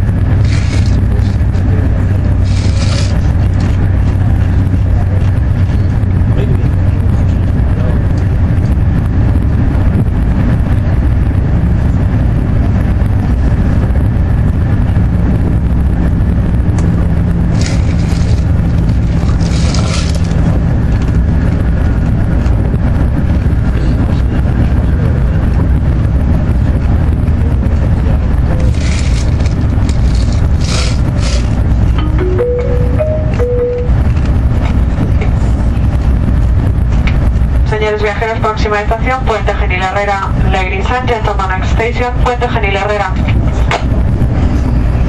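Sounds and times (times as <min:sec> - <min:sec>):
rushes of noise: 0:00.0 - 0:45.0
train rumbling at speed: 0:00.0 - 0:45.0.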